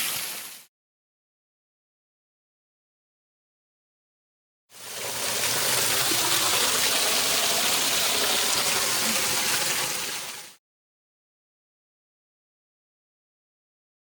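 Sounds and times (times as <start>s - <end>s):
waterfall rushing: 4.8s - 10.5s.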